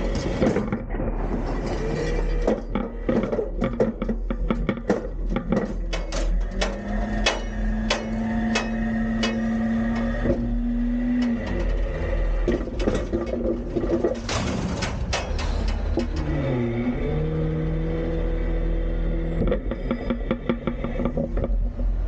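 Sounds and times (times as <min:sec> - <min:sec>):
truck engine rumble: 0:00.0 - 0:22.0
falling recyclables: 0:11.5 - 0:16.6
bin clattering and banging: 0:12.4 - 0:16.4.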